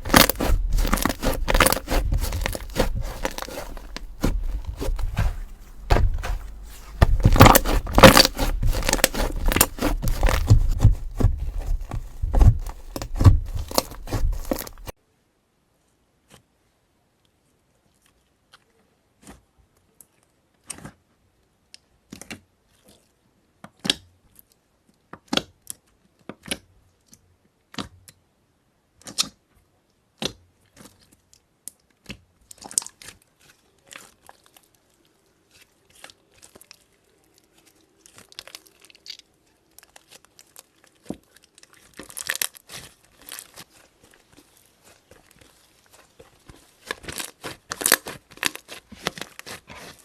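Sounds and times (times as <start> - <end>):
slime popping and crackling: 0.0 - 14.9.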